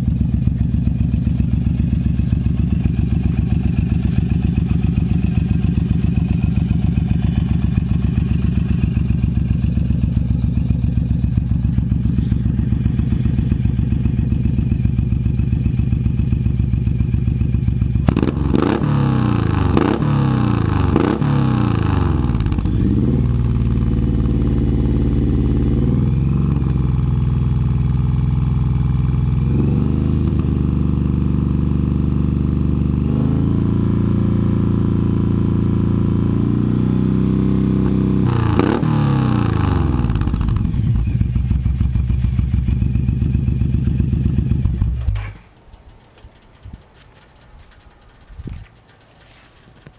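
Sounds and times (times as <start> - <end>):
motorcycle engine idling and revving: 0.0 - 49.9.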